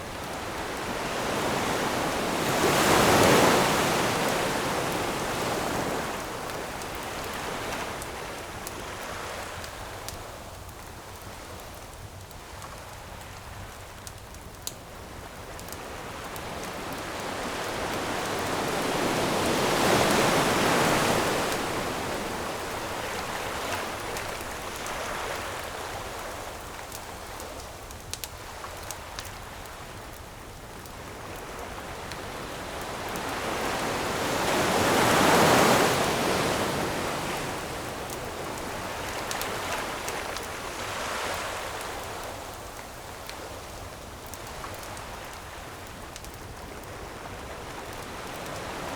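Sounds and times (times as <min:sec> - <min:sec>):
ocean waves breaking on shore: 0:00.0 - 0:09.7, 0:15.6 - 0:26.7, 0:31.0 - 0:42.8
campfire crackling: 0:00.0 - 0:48.9.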